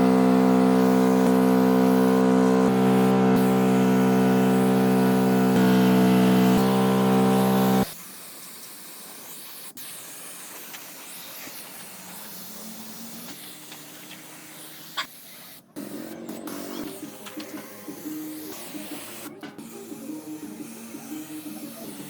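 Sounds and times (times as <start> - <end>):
loud tone-rich sound: 0.0 - 7.9
spray paint hissing: 0.0 - 22.0.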